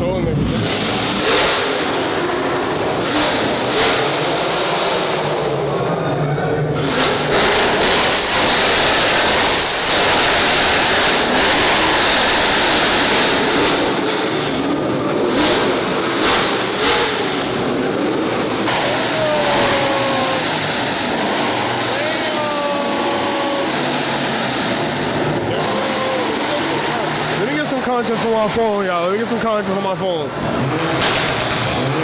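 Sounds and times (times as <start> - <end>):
car engines revving: 0.0 - 32.0
sharp cracks: 6.8 - 27.3, 30.6 - 32.0
short tire squeals: 18.2 - 28.4.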